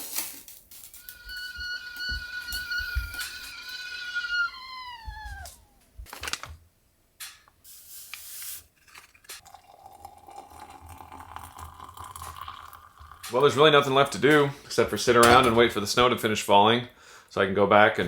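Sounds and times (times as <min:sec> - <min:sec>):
dog whining: 0:01.0 - 0:06.0.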